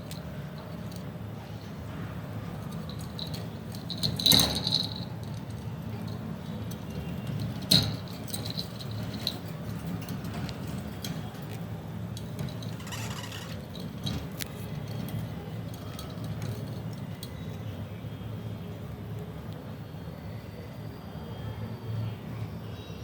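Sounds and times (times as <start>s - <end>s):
budgies clattering in cage: 12.3s - 17.2s.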